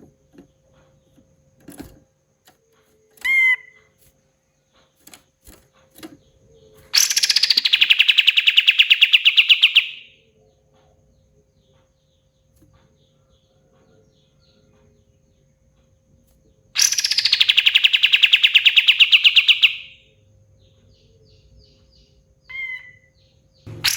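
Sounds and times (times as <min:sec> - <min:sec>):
songbird rattling trill: 0:02.7 - 0:10.2, 0:16.8 - 0:20.0, 0:23.7 - 0:23.9
songbird short pitched note: 0:23.7 - 0:23.9.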